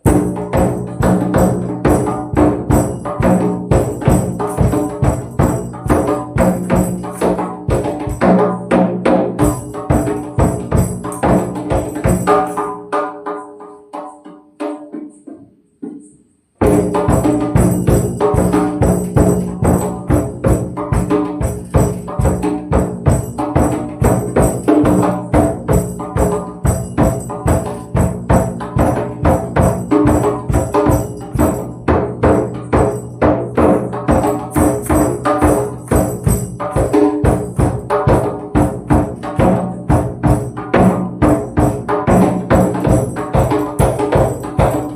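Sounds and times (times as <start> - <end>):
tambourine jingles: 0.8 - 8.2, 16.0 - 40.5, 41.4 - 44.9.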